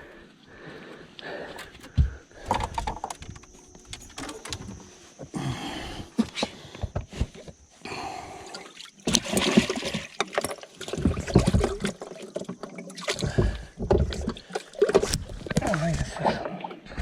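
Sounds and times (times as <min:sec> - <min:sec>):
water splashing and trickling: 0:08.3 - 0:16.8.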